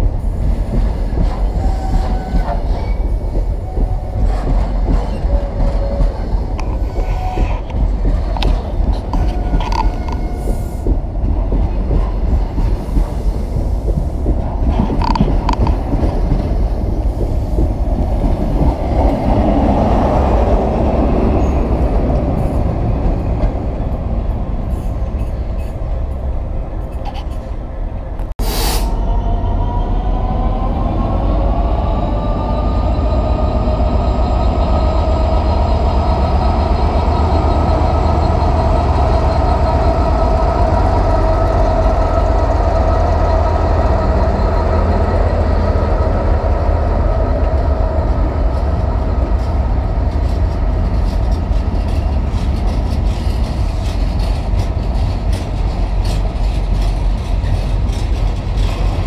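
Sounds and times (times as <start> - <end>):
diesel locomotives passing: 0.0 - 59.0
wagon wheels clicking over rail joints: 48.5 - 59.0.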